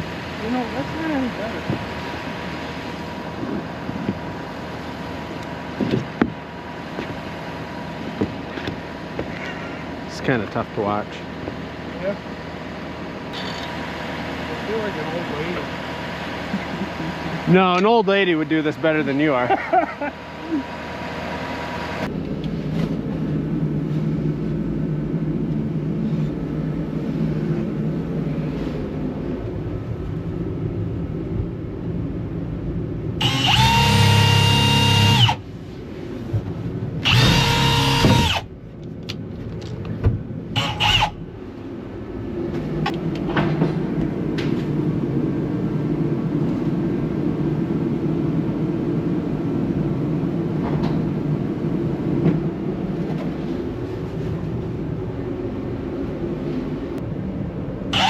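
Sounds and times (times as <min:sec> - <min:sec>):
low engine-like hum: 0:00.0 - 0:58.0
power drill whining: 0:33.2 - 0:35.4, 0:37.0 - 0:38.5, 0:40.6 - 0:41.2.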